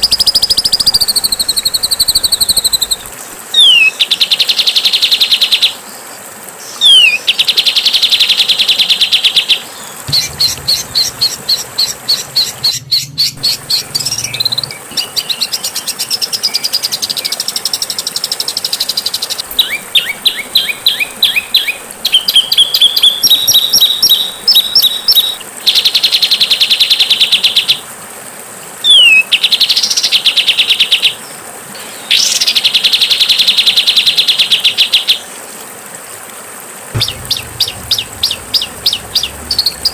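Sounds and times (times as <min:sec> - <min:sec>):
bird chirps and rising whistles: 0:00.0 - 0:04.0, 0:10.1 - 0:16.1.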